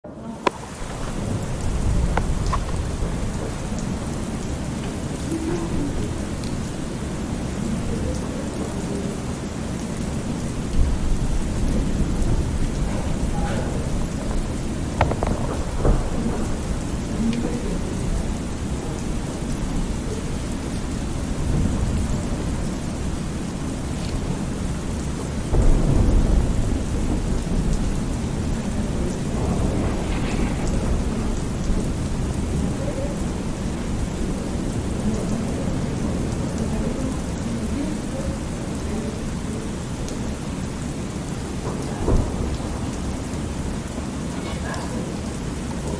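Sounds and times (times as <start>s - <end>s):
steady rain: 0.0s - 45.9s
low rolling thunder: 0.3s - 45.9s.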